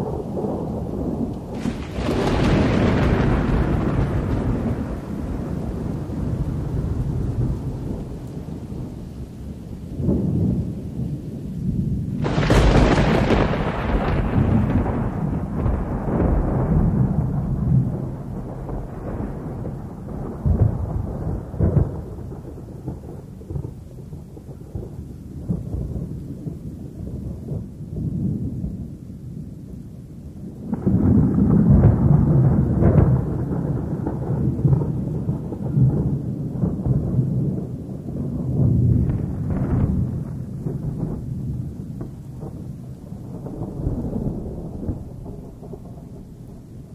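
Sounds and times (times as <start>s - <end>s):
sharp thunderclap: 0.0s - 8.9s, 11.7s - 26.6s, 30.6s - 46.9s
rolling thunder: 0.0s - 46.9s.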